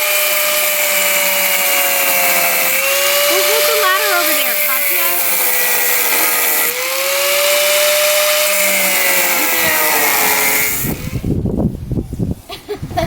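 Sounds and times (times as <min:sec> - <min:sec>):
angle grinder grinding metal: 0:00.0 - 0:11.4
wind rumble on microphone: 0:10.6 - 0:13.0.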